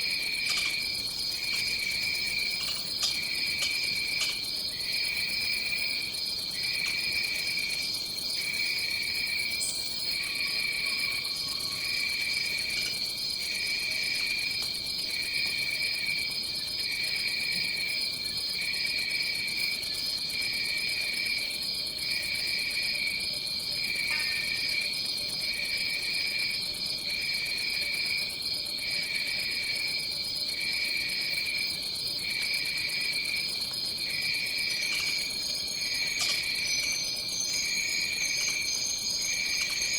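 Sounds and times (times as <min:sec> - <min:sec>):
lower trilling insect call: 0:00.0 - 0:39.9
insects high shrill drone: 0:09.6 - 0:12.7, 0:34.3 - 0:39.9.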